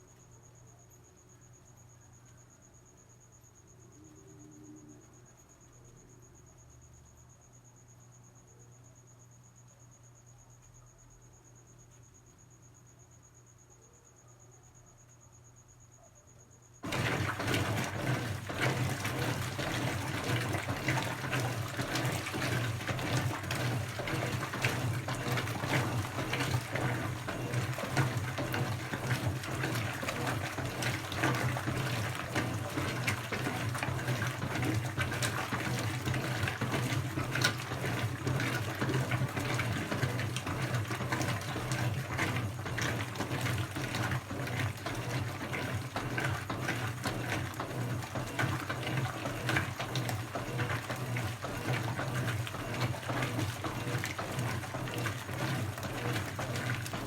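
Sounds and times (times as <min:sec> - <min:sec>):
washing machine running: 0:16.8 - 0:57.0.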